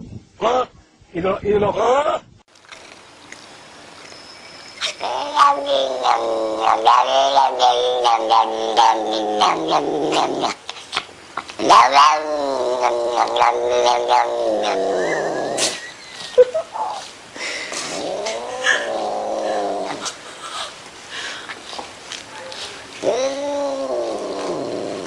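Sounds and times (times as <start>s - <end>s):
cat yowling: 4.8s - 10.6s, 11.6s - 15.8s, 18.0s - 20.2s, 23.0s - 25.0s.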